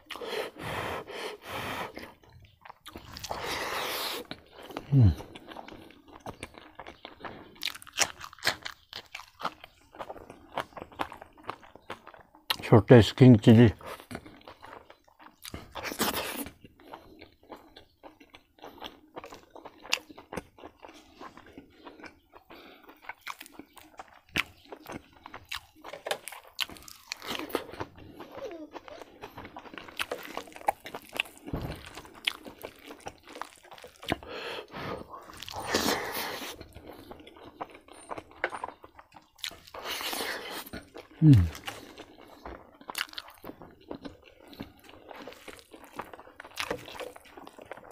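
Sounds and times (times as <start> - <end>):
person chewing and crunching: 0.0 - 47.9.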